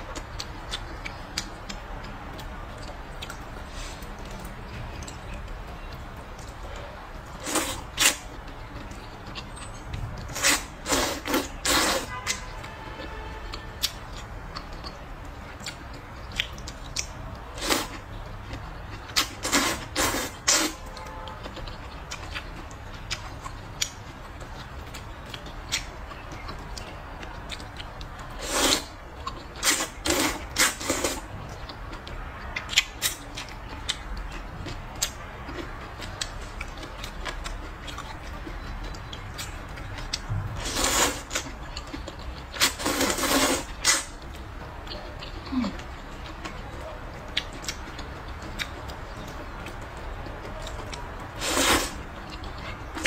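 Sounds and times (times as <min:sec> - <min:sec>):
chewing and mouth sounds: 0:00.0 - 0:53.0
wet slurps: 0:07.4 - 0:08.2, 0:10.3 - 0:12.4, 0:19.1 - 0:20.8, 0:28.3 - 0:29.0, 0:29.6 - 0:31.3, 0:40.6 - 0:41.4, 0:42.6 - 0:44.1, 0:51.4 - 0:52.8.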